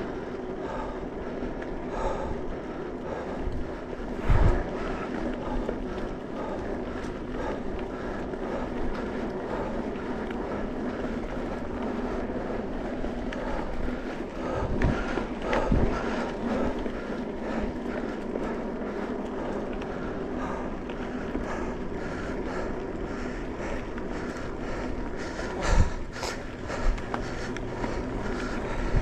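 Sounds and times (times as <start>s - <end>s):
bike tyres rumbling on dirt: 0.0s - 29.0s
wind noise on microphone: 3.1s - 5.6s, 13.4s - 16.8s, 25.3s - 29.0s.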